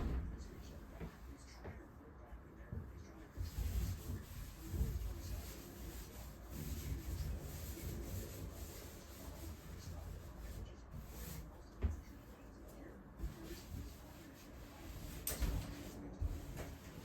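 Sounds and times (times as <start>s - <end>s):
scrubbing bathtub surface: 3.2s - 12.4s, 13.2s - 17.0s.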